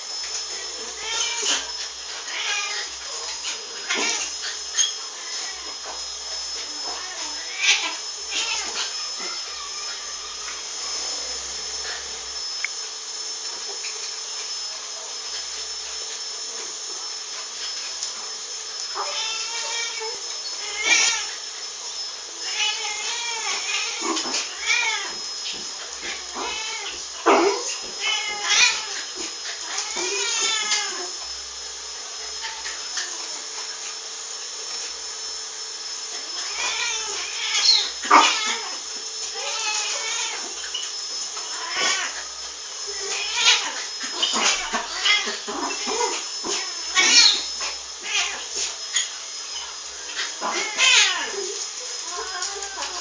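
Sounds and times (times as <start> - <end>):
pet animal drawn-out cries: 0.8 - 6.0, 6.6 - 12.2, 18.9 - 21.4, 22.4 - 31.2, 32.2 - 33.4, 36.2 - 53.0.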